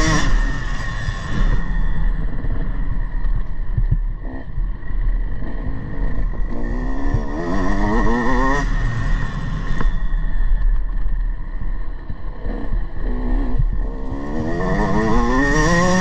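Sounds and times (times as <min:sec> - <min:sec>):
dirt bike engine revving: 0:00.0 - 0:02.8, 0:05.3 - 0:10.3, 0:12.4 - 0:16.0
wind rumble on microphone: 0:00.0 - 0:16.0.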